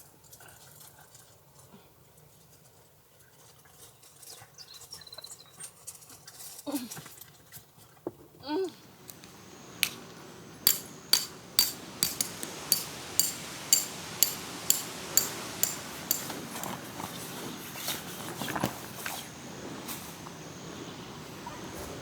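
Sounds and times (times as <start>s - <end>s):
sharp metallic knocks: 10.6s - 16.8s.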